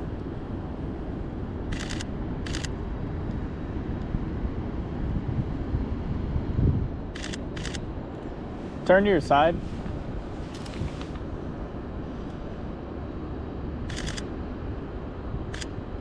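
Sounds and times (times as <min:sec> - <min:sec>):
street traffic rumble: 0:00.0 - 0:16.0
wind: 0:00.0 - 0:16.0
camera shutter clicks: 0:01.7 - 0:02.7, 0:07.2 - 0:07.8, 0:13.9 - 0:14.3, 0:15.5 - 0:15.8.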